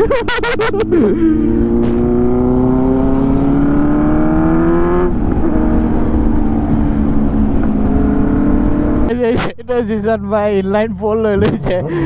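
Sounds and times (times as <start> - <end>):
motorcycle engine accelerating: 0.0 - 9.4
wind rumble on microphone: 1.6 - 9.5.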